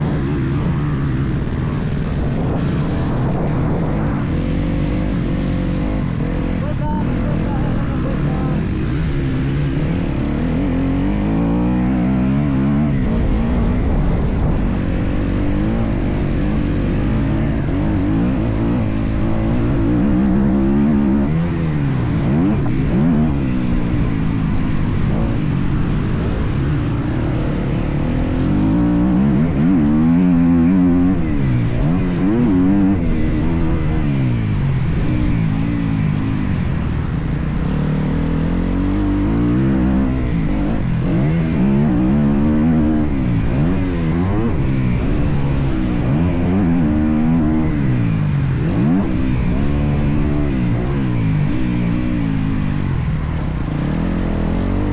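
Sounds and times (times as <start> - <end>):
motocross bike engine revving: 0.0 - 54.9.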